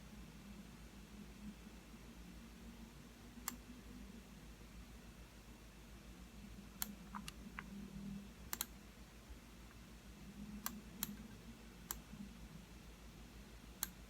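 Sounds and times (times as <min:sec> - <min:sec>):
faint low hum: 0:00.0 - 0:14.0
computer mouse clicking: 0:03.4 - 0:03.6, 0:06.8 - 0:07.7, 0:08.5 - 0:08.8, 0:10.6 - 0:12.1, 0:13.8 - 0:14.0.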